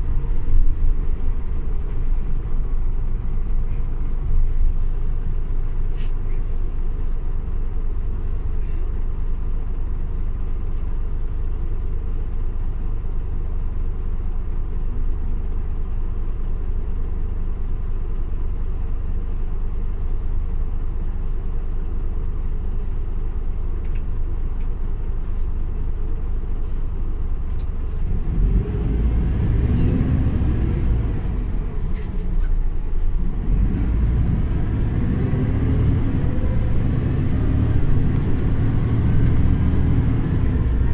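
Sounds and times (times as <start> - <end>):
bus engine accelerating: 0.0 - 40.9.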